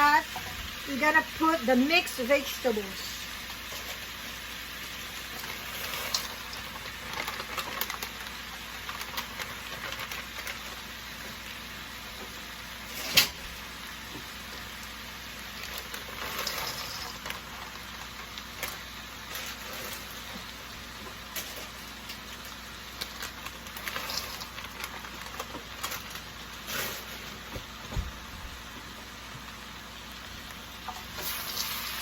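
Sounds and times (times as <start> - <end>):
food sizzling in a pan: 0.0 - 32.0
stirring clicks and scrapes: 5.3 - 10.8, 15.6 - 27.6.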